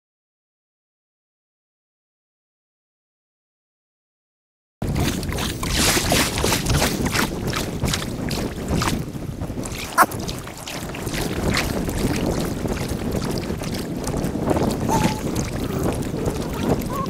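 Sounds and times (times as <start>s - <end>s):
paddle splashes: 4.8s - 17.0s
water wash: 4.8s - 17.0s
wind on microphone: 4.8s - 17.0s.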